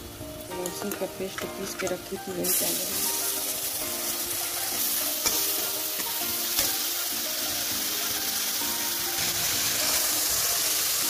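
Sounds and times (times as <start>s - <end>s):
onions sizzling in hot oil: 0.0s - 11.0s
metal spatula stirring in pan: 3.6s - 6.9s.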